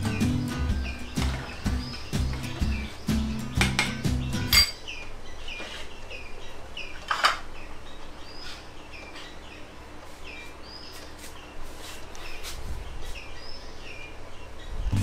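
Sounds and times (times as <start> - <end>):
bird chirping: 0.0 - 15.0
crockery clink: 3.6 - 4.8.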